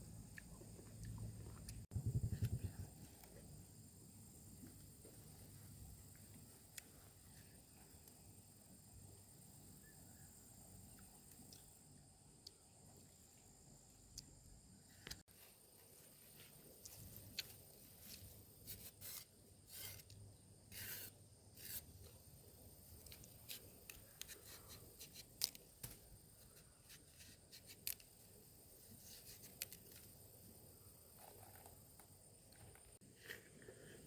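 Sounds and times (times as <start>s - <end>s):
small objects scraping: 16.9s - 22.2s.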